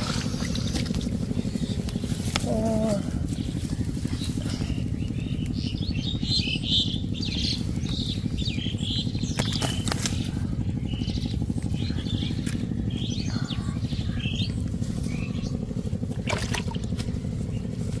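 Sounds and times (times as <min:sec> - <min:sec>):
birds chirping: 0:00.0 - 0:18.0
low pulsing engine rumble: 0:00.0 - 0:18.0.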